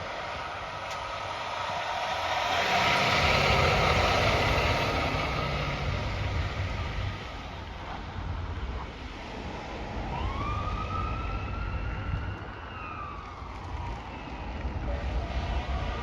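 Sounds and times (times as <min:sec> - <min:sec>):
heavy vehicle passing: 0:00.0 - 0:07.9.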